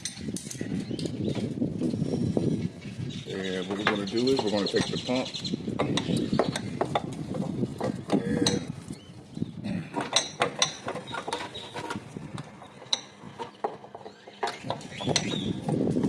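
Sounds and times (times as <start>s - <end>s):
metal parts clicking and clunking: 0.0s - 1.2s, 9.8s - 16.0s.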